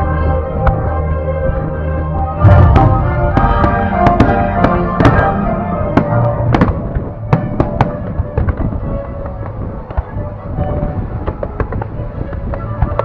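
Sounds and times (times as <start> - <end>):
music playing: 0.0 - 13.0
fireworks bangs: 2.4 - 8.7.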